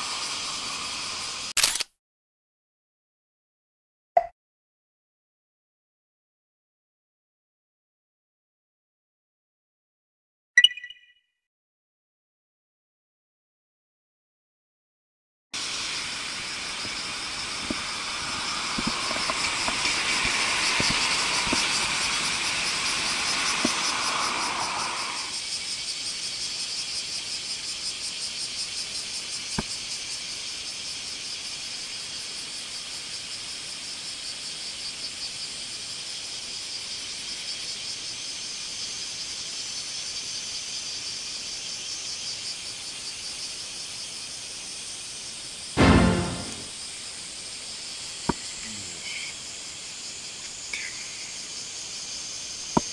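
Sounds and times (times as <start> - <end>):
insects chirring: 0.0 - 1.5, 15.6 - 52.9
low insect chirr: 0.0 - 1.5, 15.6 - 45.8, 46.7 - 52.9
sharp click: 1.6 - 1.9, 45.8 - 46.7.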